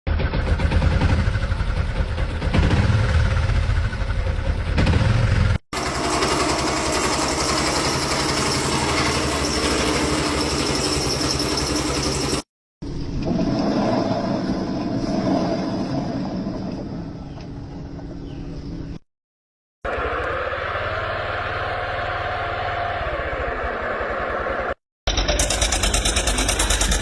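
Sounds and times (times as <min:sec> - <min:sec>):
motorcycle engine low rumble: 0:00.1 - 0:08.3
motorcycle engine rapid pulsing: 0:00.1 - 0:12.4, 0:25.1 - 0:27.0.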